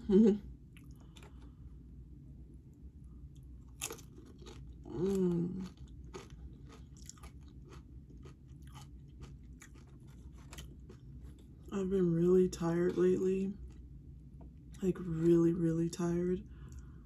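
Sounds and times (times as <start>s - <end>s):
person humming mmm: 0.0s - 0.5s, 4.9s - 5.7s
crunching chips: 3.6s - 11.5s.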